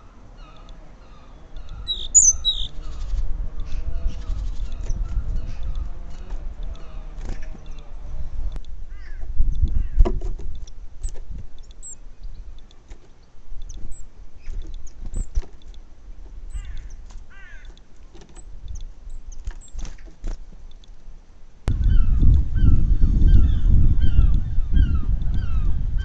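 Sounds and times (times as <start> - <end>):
low uneven rumble: 0.0 - 19.3
small birds chirping: 0.0 - 26.0.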